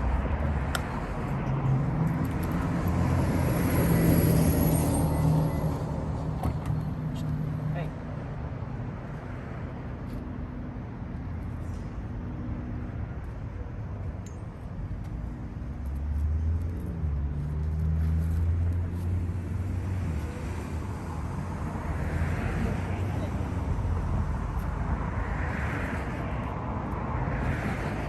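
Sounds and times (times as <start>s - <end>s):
street traffic: 0.0s - 28.0s.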